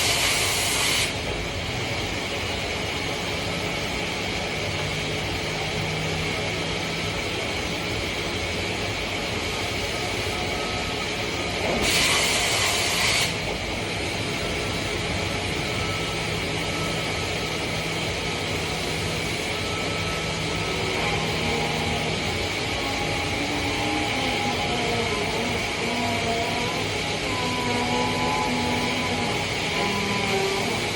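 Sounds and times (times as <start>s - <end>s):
loud hiss: 0.0s - 1.2s
cnc machine humming and whining: 0.0s - 30.9s.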